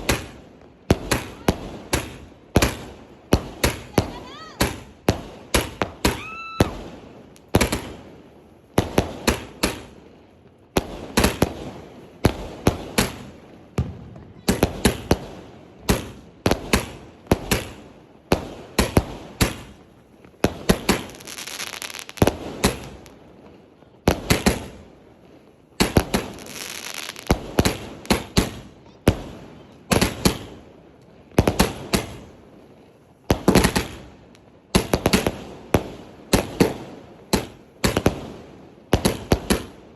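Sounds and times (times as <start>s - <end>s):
firework bangs: 0.0s - 39.9s
firework crackling: 0.0s - 39.9s.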